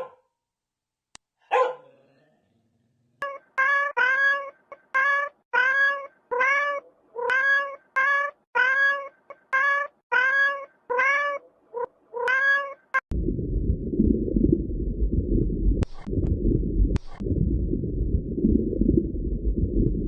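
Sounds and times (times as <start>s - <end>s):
cat meowing: 3.2s - 13.0s
low rumbling noise: 13.1s - 20.0s.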